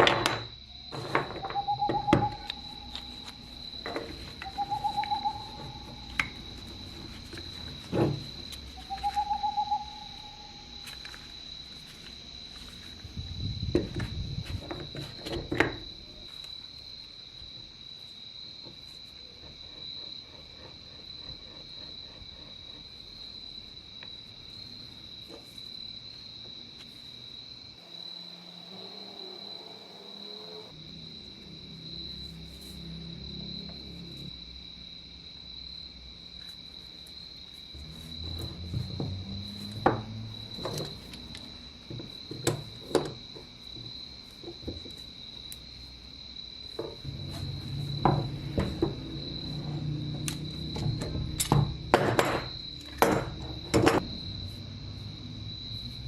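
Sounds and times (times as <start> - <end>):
high insect-like chirring: 0.0 - 56.0
short trilled hoot-like calls: 1.4 - 3.2, 4.4 - 6.4, 8.8 - 10.7.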